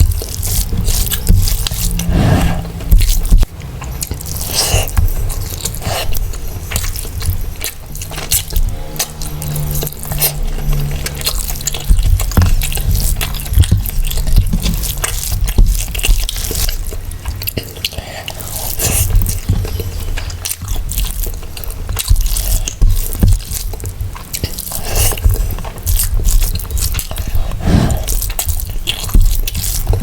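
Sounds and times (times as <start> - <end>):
person chewing food: 0.0 - 30.0.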